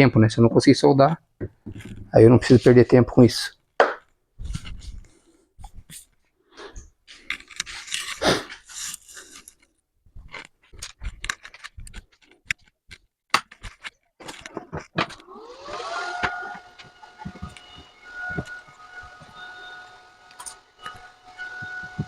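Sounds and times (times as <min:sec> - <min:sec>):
electric motor whine: 0:15.2 - 0:22.0.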